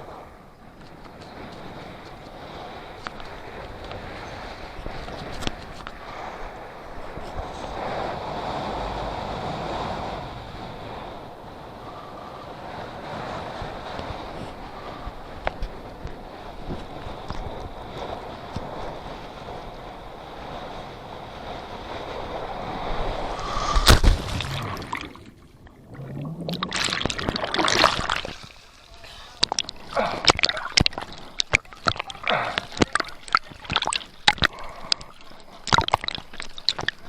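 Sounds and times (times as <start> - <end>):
wind on microphone: 0.0 - 28.6
loud splash into water: 23.2 - 28.8
water sloshing and gurgling: 23.2 - 37.0
short sharp splashes: 23.3 - 34.5, 35.1 - 37.0.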